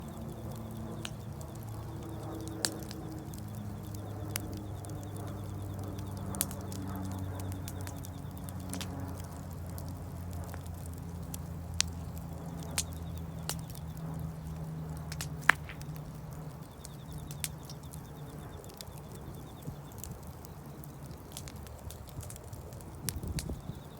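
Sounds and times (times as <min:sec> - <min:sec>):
burning wood popping: 0:00.0 - 0:23.9
wood fire crackling: 0:00.0 - 0:23.9.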